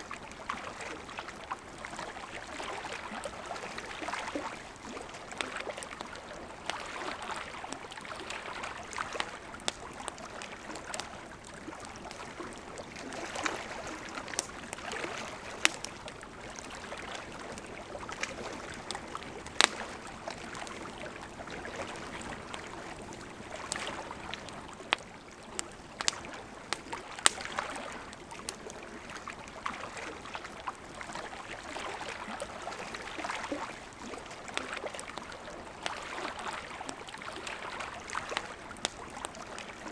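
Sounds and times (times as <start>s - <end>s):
wood crackling and popping: 1.4s - 29.7s, 33.0s - 39.9s.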